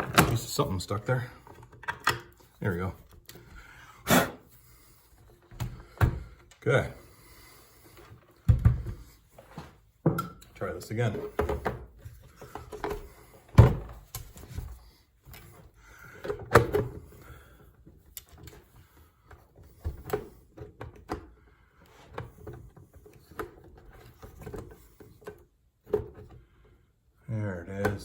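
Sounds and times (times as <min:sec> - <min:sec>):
clicks taps and knocks of handled parts: 0:01.4 - 0:03.5, 0:10.1 - 0:10.6, 0:17.8 - 0:18.7, 0:27.8 - 0:28.0.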